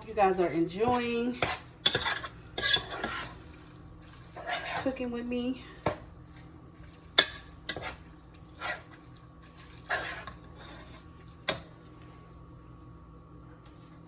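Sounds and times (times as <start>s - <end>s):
utensil scraping a pan: 0.7s - 3.5s, 4.2s - 5.1s, 7.2s - 9.0s, 9.6s - 11.0s.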